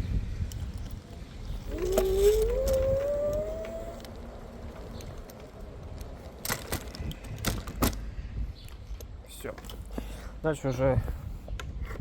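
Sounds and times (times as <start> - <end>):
electric scooter motor whining: 1.6 - 4.8.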